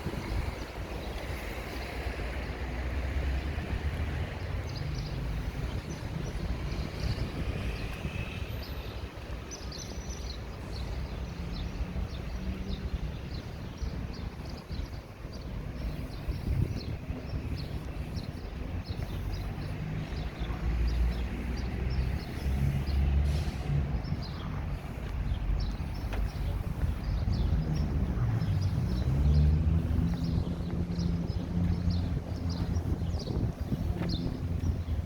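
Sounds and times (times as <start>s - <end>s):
low rumble of passing vehicles: 0.0s - 35.0s.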